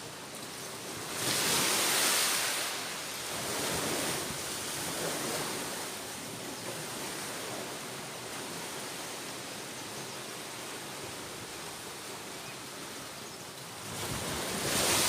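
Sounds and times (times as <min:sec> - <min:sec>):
wind: 0:00.0 - 0:15.0
ocean surf washing in: 0:01.1 - 0:06.1, 0:13.8 - 0:15.0.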